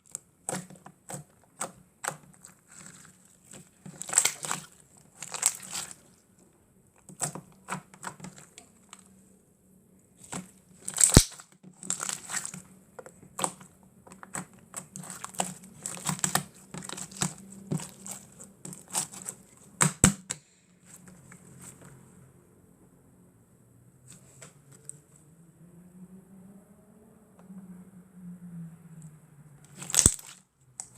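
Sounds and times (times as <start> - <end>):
slime squished by hand: 0.0 - 9.2, 10.2 - 20.4, 29.7 - 30.9.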